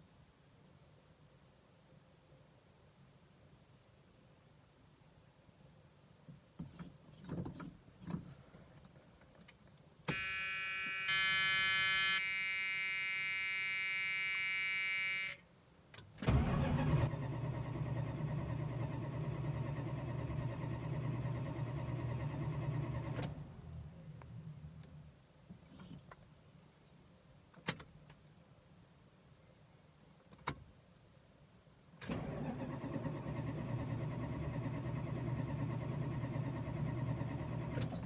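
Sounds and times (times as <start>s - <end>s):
electronic warning tone: 10.1s - 15.4s
car starter cranking engine: 16.2s - 23.9s, 32.0s - 38.0s.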